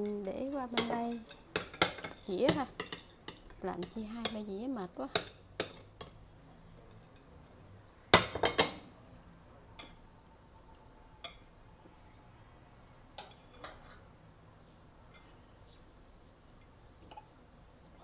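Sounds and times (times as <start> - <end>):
plates and utensils clinking: 0.0 - 4.5, 8.2 - 9.0, 13.2 - 14.1.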